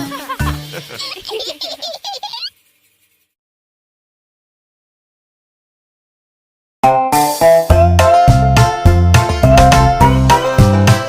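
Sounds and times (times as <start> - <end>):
baby giggling: 0.0 - 2.6.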